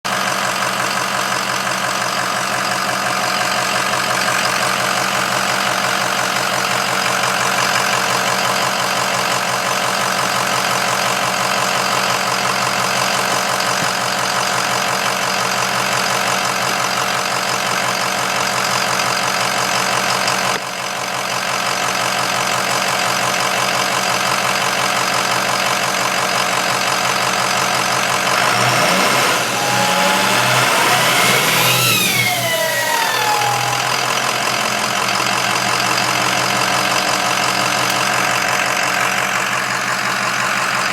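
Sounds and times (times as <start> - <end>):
diesel engine idling: 0.1 - 40.9
turbocharger noise: 27.8 - 39.1.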